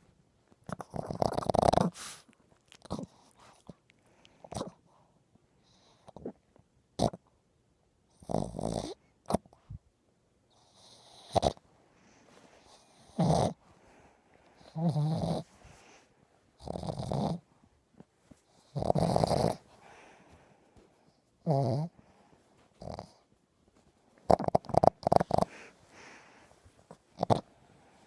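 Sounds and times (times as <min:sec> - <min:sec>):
small dog snoring: 0:00.6 - 0:03.7, 0:04.4 - 0:04.8, 0:05.6 - 0:06.4, 0:07.0 - 0:07.3, 0:08.1 - 0:09.6, 0:10.5 - 0:11.6, 0:12.6 - 0:13.6, 0:14.6 - 0:15.8, 0:16.6 - 0:17.5, 0:18.5 - 0:19.8, 0:21.4 - 0:22.1, 0:22.7 - 0:23.3, 0:24.2 - 0:26.2, 0:26.9 - 0:27.6.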